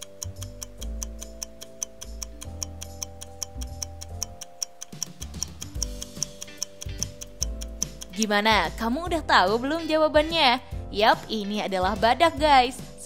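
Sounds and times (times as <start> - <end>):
clock ticking fast: 0.0 - 10.3
background music with low notes: 0.0 - 13.0.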